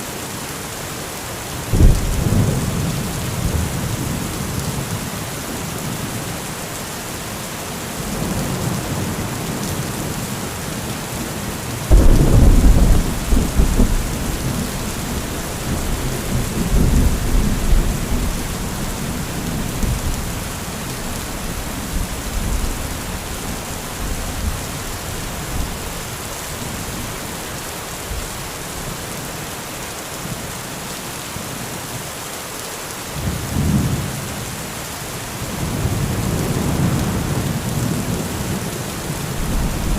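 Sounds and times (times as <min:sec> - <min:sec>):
rain hiss: 0:00.0 - 0:39.9
thunderclap rumbling: 0:11.9 - 0:24.7, 0:39.4 - 0:39.9.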